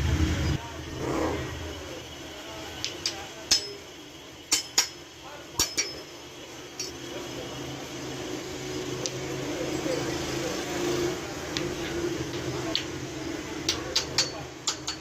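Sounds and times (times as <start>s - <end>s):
metal striking metal: 3.0s - 3.8s, 4.5s - 5.0s.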